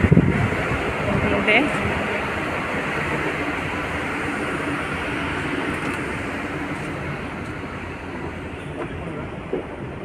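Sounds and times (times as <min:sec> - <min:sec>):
steady wind: 0:00.0 - 0:10.0.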